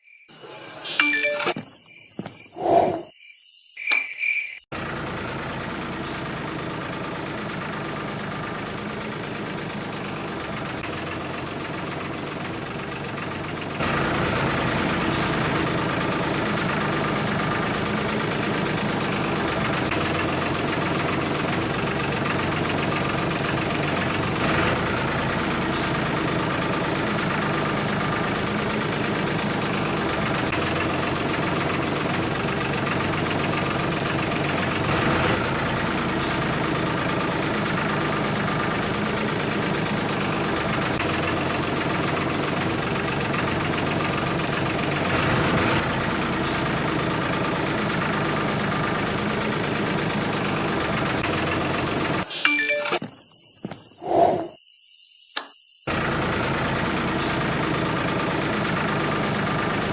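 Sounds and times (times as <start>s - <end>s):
short chimes: 0.8s - 3.0s, 52.3s - 53.2s.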